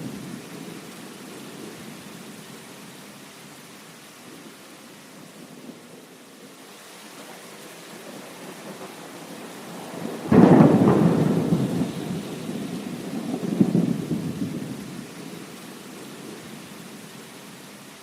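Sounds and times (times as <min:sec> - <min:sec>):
heavy rain: 0:00.0 - 0:18.0
thunderclap rumbling: 0:08.0 - 0:15.2.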